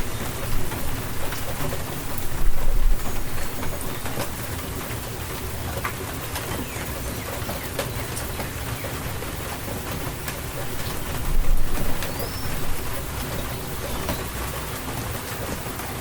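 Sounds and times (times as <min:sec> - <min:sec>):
rain falling: 0:00.0 - 0:16.0
raindrops striking surfaces: 0:00.0 - 0:16.0.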